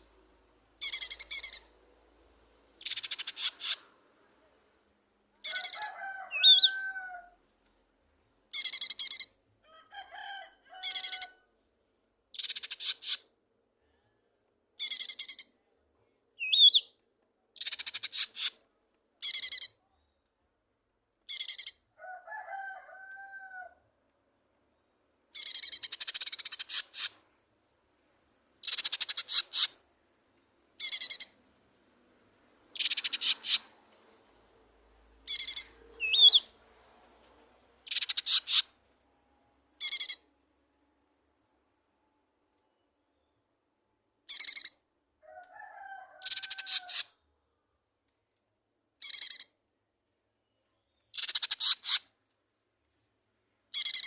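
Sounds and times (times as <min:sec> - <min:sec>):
bird buzzy chattering song: 0:00.8 - 0:01.7, 0:02.8 - 0:03.9, 0:08.6 - 0:09.3, 0:12.4 - 0:13.2, 0:14.8 - 0:15.5, 0:16.4 - 0:16.9, 0:17.6 - 0:18.6, 0:25.4 - 0:27.3, 0:28.6 - 0:29.8, 0:30.8 - 0:31.4, 0:32.8 - 0:33.7, 0:35.2 - 0:37.0, 0:37.8 - 0:38.7, 0:39.8 - 0:40.3, 0:44.3 - 0:44.7, 0:49.0 - 0:49.5, 0:51.1 - 0:52.0, 0:53.8 - 0:54.0.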